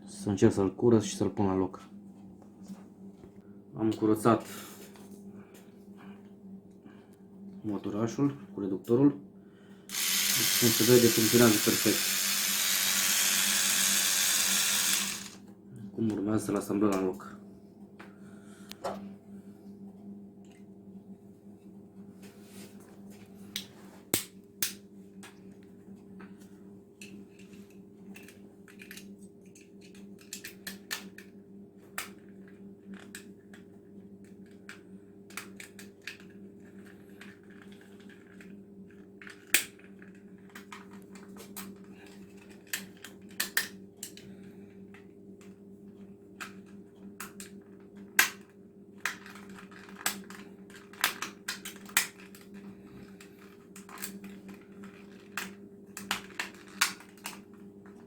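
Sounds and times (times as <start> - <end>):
plastic parts clicking and snapping: 48.2 - 52.5.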